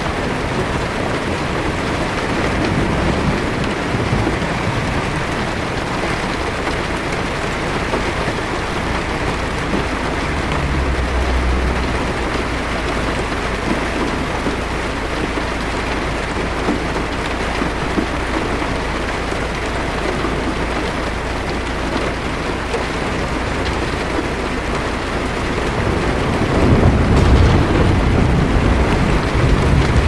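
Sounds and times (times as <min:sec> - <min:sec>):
low thunder rumble: 0:00.0 - 0:15.6, 0:23.2 - 0:30.0
heavy rain on car roof: 0:00.0 - 0:30.0.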